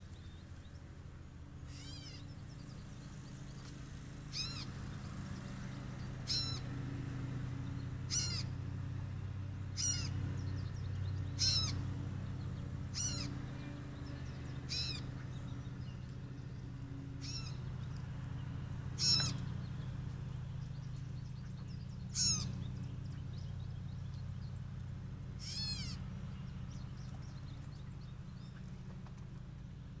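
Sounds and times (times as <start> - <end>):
steady low hum: 0.0 - 30.0
bird mewing calls: 1.6 - 2.5, 4.3 - 4.8, 6.2 - 6.7, 8.0 - 8.6, 9.7 - 18.0, 18.9 - 23.8, 25.3 - 28.9.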